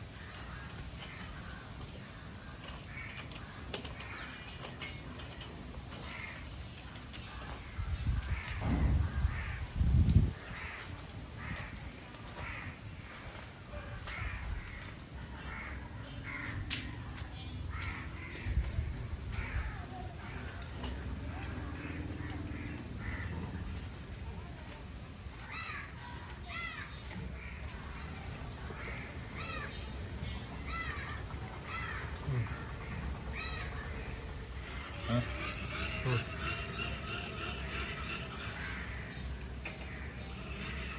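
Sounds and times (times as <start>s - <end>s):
crow cawing: 0.1s - 4.5s, 6.0s - 9.8s, 10.4s - 24.0s, 25.4s - 40.9s
low rumbling thumps: 8.0s - 10.5s.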